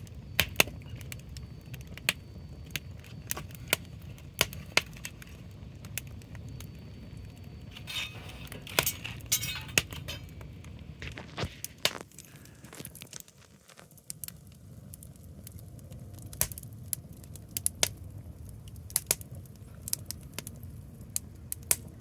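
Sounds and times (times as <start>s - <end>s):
low steady rumble: 0.0s - 11.3s
bonfire crackling and popping: 0.0s - 22.0s
fire hissing: 0.0s - 22.0s.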